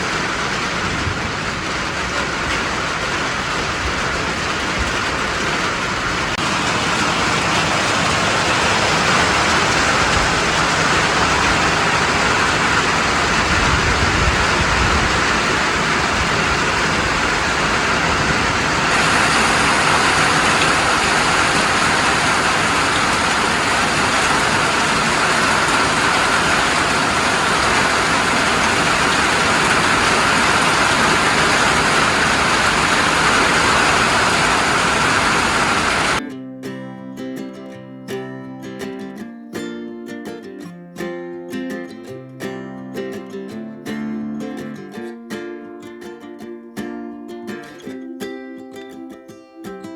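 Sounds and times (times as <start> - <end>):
heavy rain on a roof: 0.0 - 36.2.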